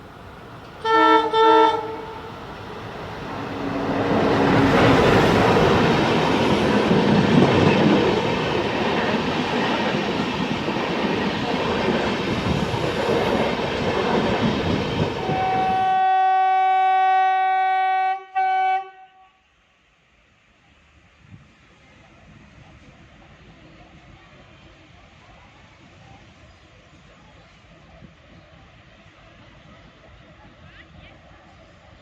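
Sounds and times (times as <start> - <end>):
passenger train running past: 0.0 - 32.0
train horn blasts: 0.8 - 2.3, 3.4 - 5.2, 15.2 - 19.4.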